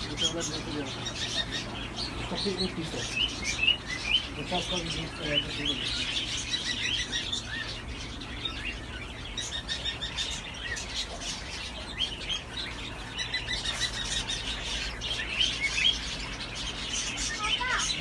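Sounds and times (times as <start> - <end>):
low steady hum: 0.0 - 18.0
small birds chirping: 0.0 - 18.0.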